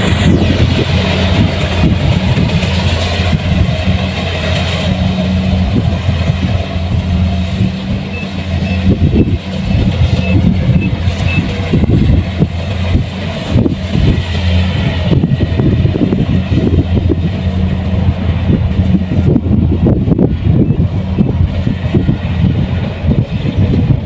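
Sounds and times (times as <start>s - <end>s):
harvester engine hum: 0.0s - 24.0s
machinery rattling: 0.0s - 24.0s.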